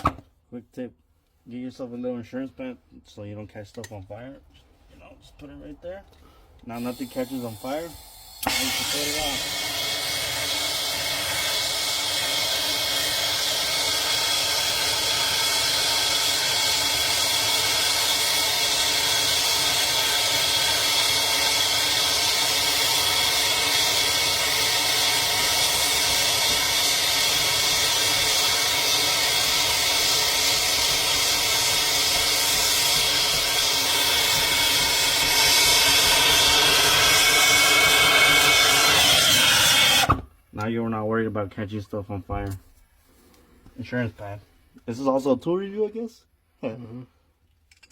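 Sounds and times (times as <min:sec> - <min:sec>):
gas torch flame hissing: 0:06.6 - 0:40.3.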